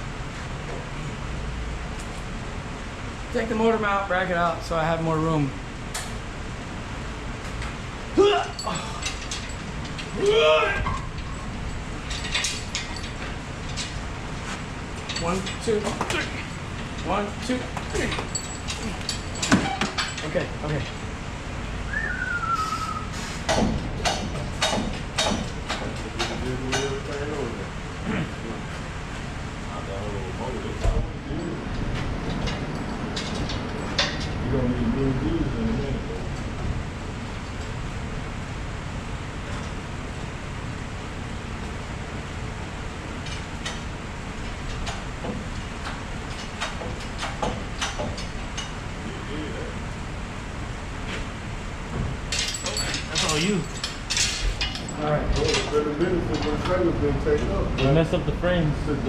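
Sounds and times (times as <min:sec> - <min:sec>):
steady low rumble: 0:00.0 - 0:59.0
metallic clicks and clanks: 0:08.5 - 0:21.1, 0:23.4 - 0:27.4, 0:30.8 - 0:34.4, 0:43.1 - 0:49.0, 0:52.2 - 0:56.8
falling whistle: 0:21.9 - 0:23.2
sharp knocks: 0:23.4 - 0:27.0.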